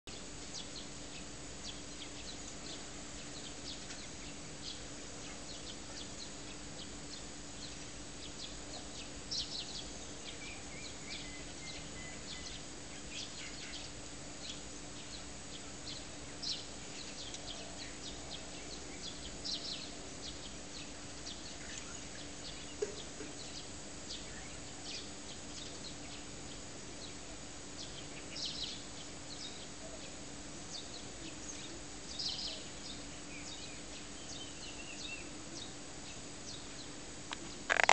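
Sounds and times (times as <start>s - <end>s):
steady hiss: 0.1s - 37.9s
steady low hum: 0.1s - 37.9s
high bird chirps: 37.7s - 37.9s
thin bird trill: 37.7s - 37.9s.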